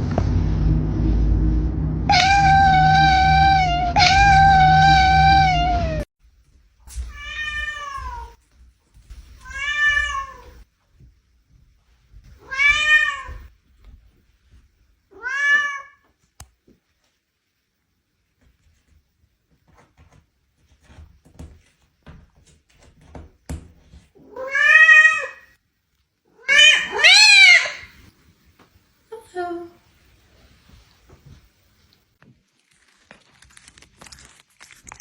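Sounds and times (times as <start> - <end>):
low rumble: 0.0 - 6.1
cat meowing: 2.1 - 6.1, 7.1 - 8.4, 9.4 - 10.6, 12.4 - 13.5, 15.1 - 16.0, 24.2 - 25.5, 26.4 - 28.0.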